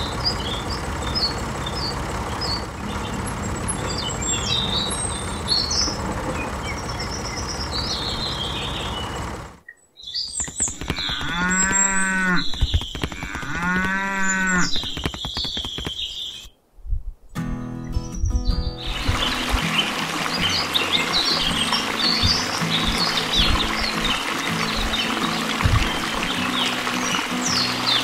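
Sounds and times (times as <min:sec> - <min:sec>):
birds chirping: 0:00.0 - 0:16.7, 0:17.3 - 0:28.0
cow mooing: 0:10.8 - 0:12.5, 0:13.1 - 0:14.8
steady noise: 0:18.8 - 0:28.0.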